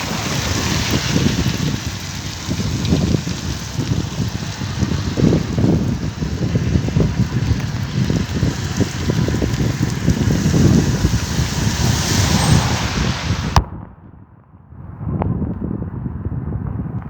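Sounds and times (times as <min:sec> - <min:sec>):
heavy rain hissing: 0:00.0 - 0:13.6
dull storm rumble: 0:00.0 - 0:17.0
wind buffeting microphone: 0:00.0 - 0:17.0.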